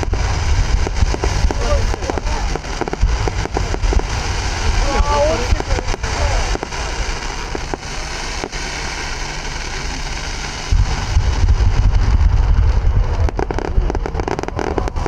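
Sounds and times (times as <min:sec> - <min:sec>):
sharp pops: 0:00.0 - 0:04.3, 0:05.4 - 0:08.8
fireworks crackling: 0:00.0 - 0:15.0
low rumble of bursts: 0:00.0 - 0:15.0.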